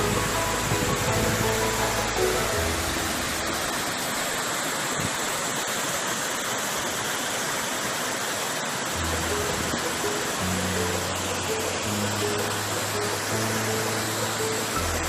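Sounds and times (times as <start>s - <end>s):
music with low bass notes: 0.0s - 3.5s
waterfall rushing: 0.0s - 15.0s.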